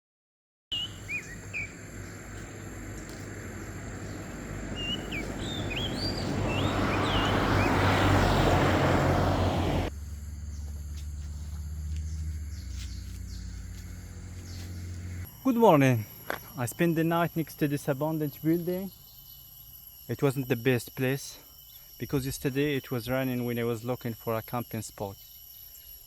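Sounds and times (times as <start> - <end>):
birds chirping: 0.7 - 16.7
low hum: 0.9 - 15.2.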